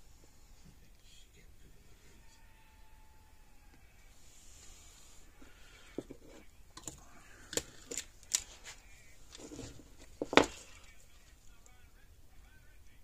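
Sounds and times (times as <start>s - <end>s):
light rustling of wire: 3.8s - 11.8s.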